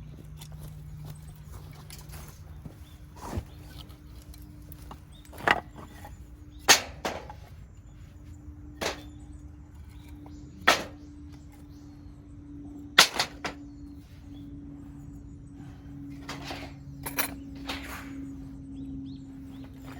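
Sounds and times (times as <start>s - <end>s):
hatchet chopping firewood: 3.8s - 7.5s, 8.8s - 9.2s, 10.0s - 11.4s, 13.0s - 13.6s.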